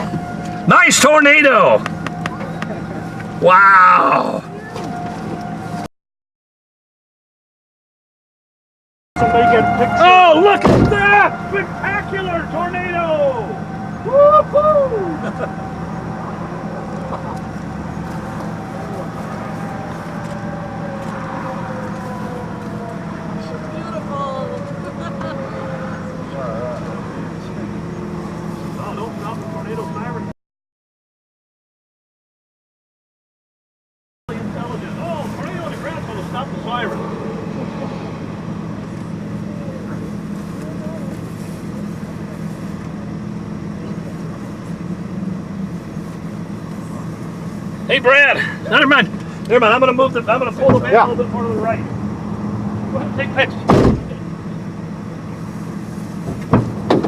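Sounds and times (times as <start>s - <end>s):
vehicle engine idling: 0.0s - 3.5s, 9.2s - 30.3s, 34.3s - 57.0s
outdoor rushing noise: 34.3s - 57.0s.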